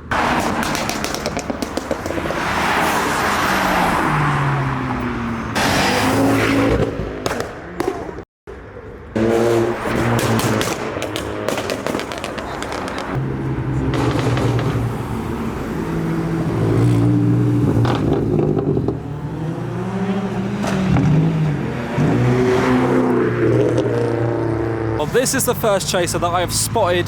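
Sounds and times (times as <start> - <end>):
car engines revving: 0.0 - 27.0
sharp cracks: 0.4 - 2.3, 10.0 - 13.2.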